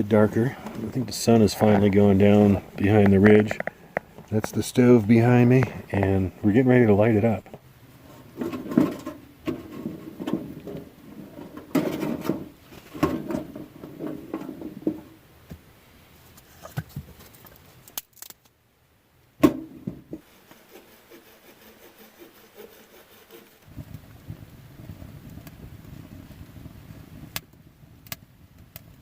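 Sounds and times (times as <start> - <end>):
firewood rustling and knocking: 0.1 - 6.1, 7.4 - 15.7, 19.4 - 20.3.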